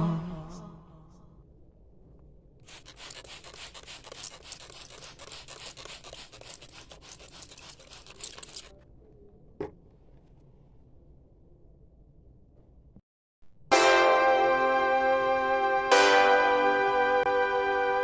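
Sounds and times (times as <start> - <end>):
scratchy crackling rustle: 2.6 - 8.8.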